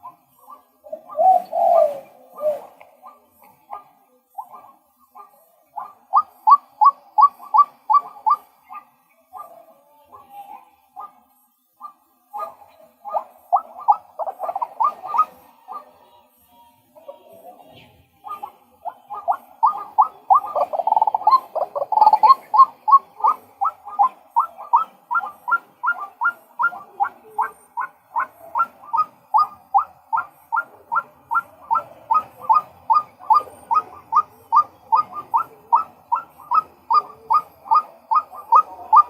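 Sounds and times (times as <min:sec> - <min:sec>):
waterhen calling sharp notes: 0:18.2 - 0:39.0.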